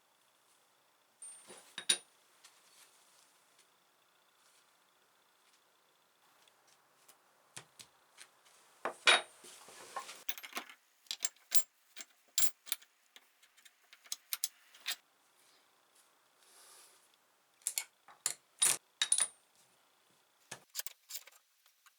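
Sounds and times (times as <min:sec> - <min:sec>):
metal tools clinking: 0:01.2 - 0:02.0.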